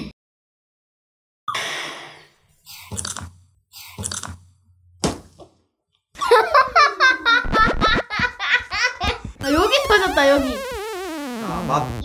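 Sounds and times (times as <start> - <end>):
laughter: 6.2 - 9.2.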